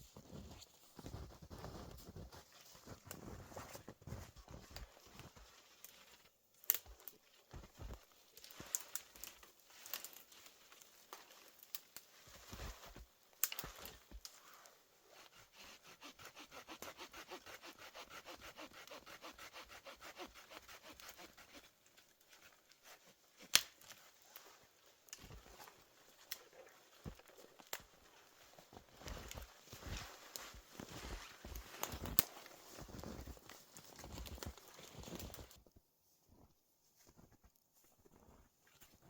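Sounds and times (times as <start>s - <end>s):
hand saw cutting wood: 15.3s - 21.6s.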